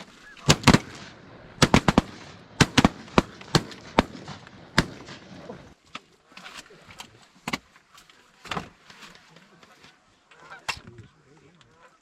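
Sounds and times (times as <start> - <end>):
shotgun shots: 0.0 - 5.6.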